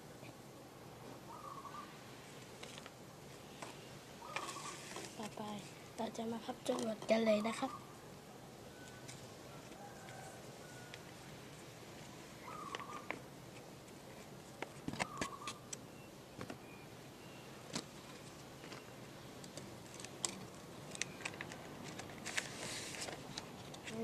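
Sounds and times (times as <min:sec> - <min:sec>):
paper crinkling and creasing: 0:19.6 - 0:24.0.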